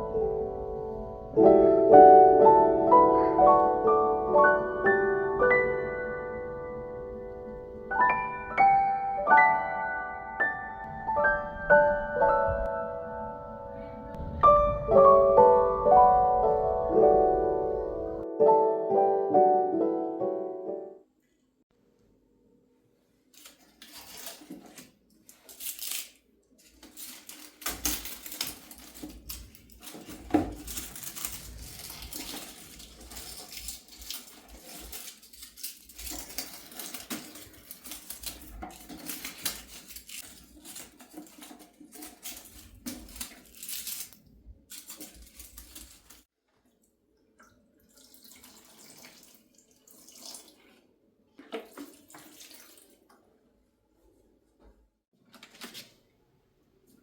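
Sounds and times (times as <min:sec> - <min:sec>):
water splashes: 0:47.4 - 0:53.1
tap water running into sink: 0:47.4 - 0:53.2.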